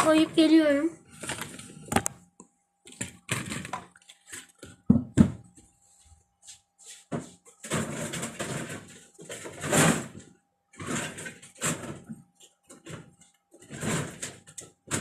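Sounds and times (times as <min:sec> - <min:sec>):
objects knocking and clicking: 0:01.2 - 0:05.6, 0:07.1 - 0:15.0.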